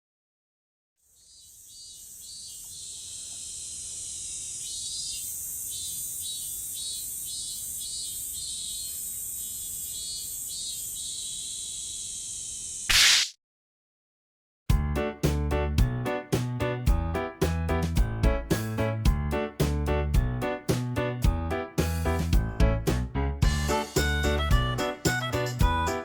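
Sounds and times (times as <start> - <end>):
insects shrilling: 1.0 - 13.3.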